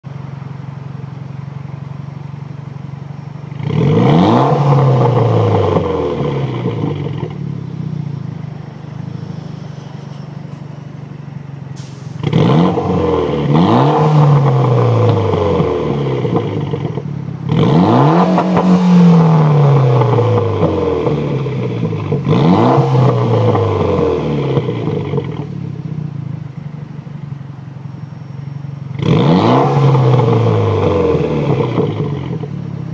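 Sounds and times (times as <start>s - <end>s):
car engine idling: 0.0s - 32.9s
engine revving: 3.5s - 10.6s, 11.8s - 25.6s, 28.9s - 32.9s.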